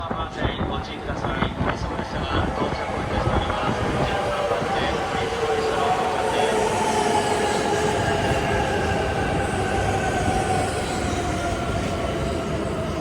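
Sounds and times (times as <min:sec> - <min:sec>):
high-speed train rumbling: 0:00.0 - 0:13.0
train whining tones: 0:00.0 - 0:13.0.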